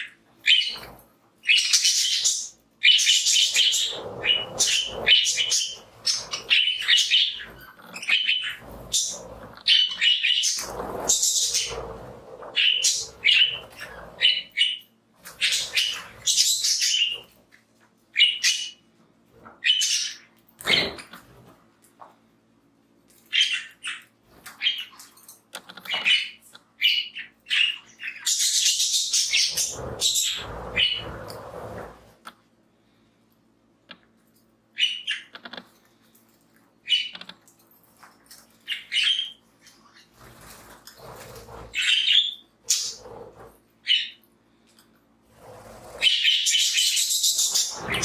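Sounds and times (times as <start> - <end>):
budgerigars chirping: 0.4 - 0.9, 1.5 - 14.8, 15.4 - 17.2, 38.7 - 39.4, 46.0 - 48.0.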